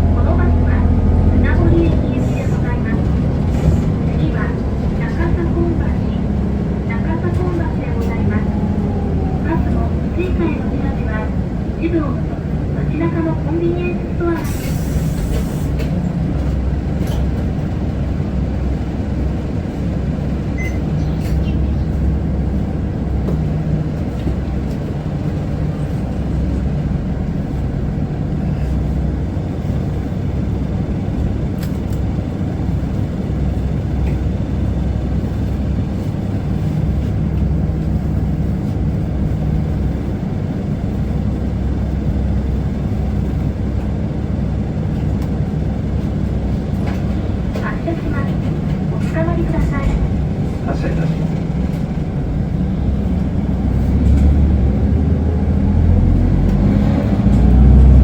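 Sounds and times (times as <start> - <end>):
low hum: 0.0 - 12.9
bus engine drone: 0.0 - 58.0
road rumble: 0.0 - 58.0.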